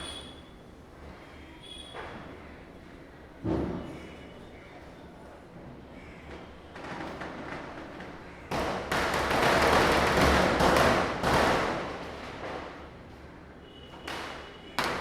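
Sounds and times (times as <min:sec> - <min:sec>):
firecrackers popping: 0:06.7 - 0:13.0.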